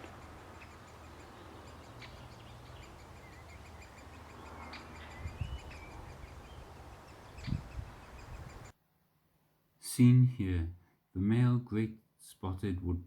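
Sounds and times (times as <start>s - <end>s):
nestlings begging calls: 0.0s - 8.7s.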